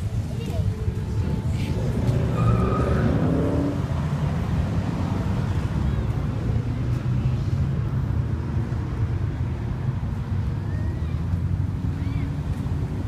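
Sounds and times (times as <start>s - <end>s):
faint voices: 0.0s - 2.9s
car engines rumbling in traffic: 0.0s - 13.0s.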